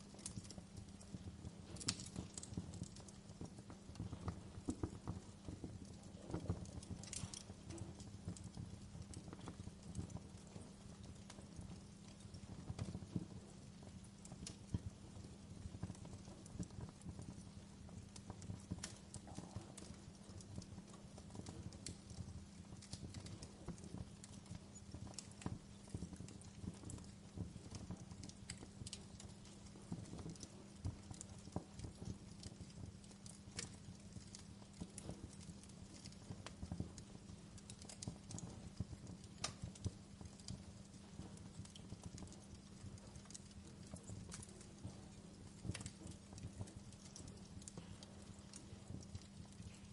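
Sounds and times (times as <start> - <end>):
bonfire crackling: 0.0 - 49.9.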